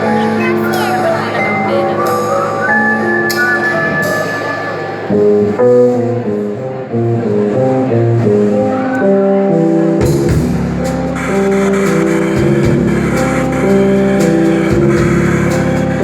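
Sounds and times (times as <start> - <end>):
plucked guitar melody: 0.0 - 9.4.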